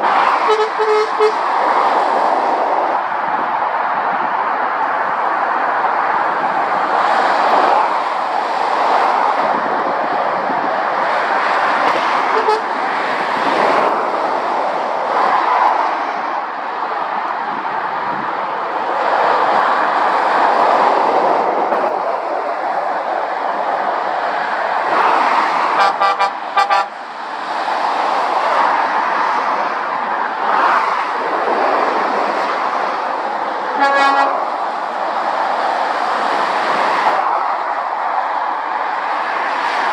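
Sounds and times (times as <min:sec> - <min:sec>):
motorway traffic passing: 0:00.0 - 0:39.9
vehicle horn toots: 0:00.4 - 0:01.4, 0:12.3 - 0:12.7, 0:25.8 - 0:26.9, 0:33.8 - 0:34.4.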